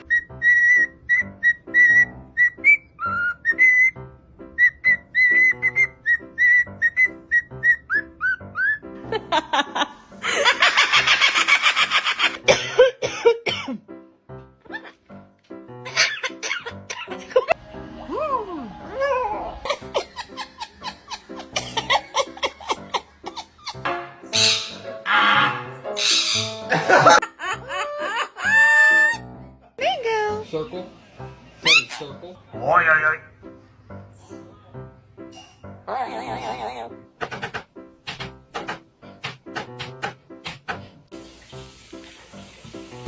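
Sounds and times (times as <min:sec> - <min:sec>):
parrot whistling a tune: 0:00.0 - 0:08.8
parrot laugh-like calls: 0:15.8 - 0:17.2, 0:19.6 - 0:29.2
parrot screech: 0:24.4 - 0:26.6.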